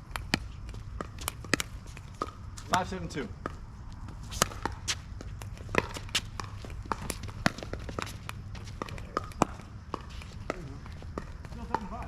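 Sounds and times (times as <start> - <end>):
paddles hitting plastic ball: 0.0 - 12.0
shoes on court: 0.0 - 12.0.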